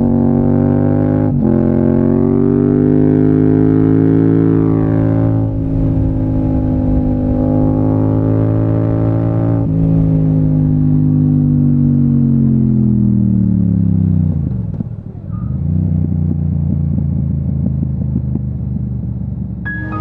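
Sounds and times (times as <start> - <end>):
motorcycle engine decelerating: 0.0 - 20.0.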